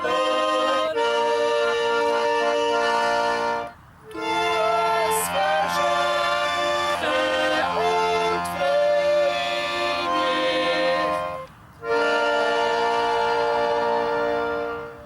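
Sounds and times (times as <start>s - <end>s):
accordion chords: 0.0s - 15.0s
person singing: 4.1s - 15.0s.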